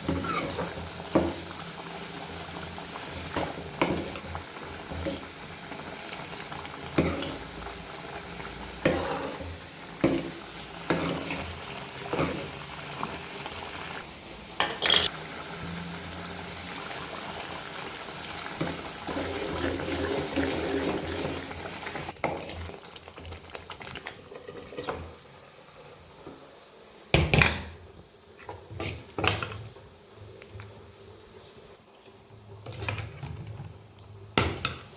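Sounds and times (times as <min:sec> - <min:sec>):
food frying and bubbling: 0:00.0 - 0:34.9
spoon stirring food in a pan: 0:08.8 - 0:13.2.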